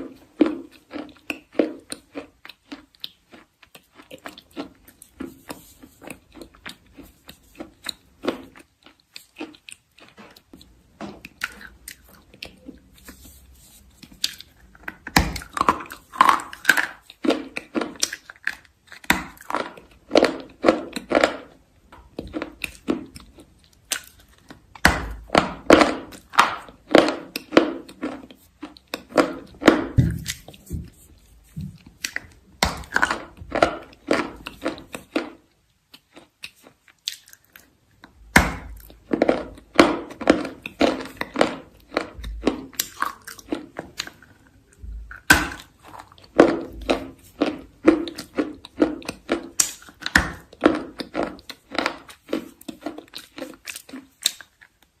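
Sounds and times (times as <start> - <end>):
chalk crunching: 2.7 - 10.3, 11.2 - 17.1, 28.0 - 35.1.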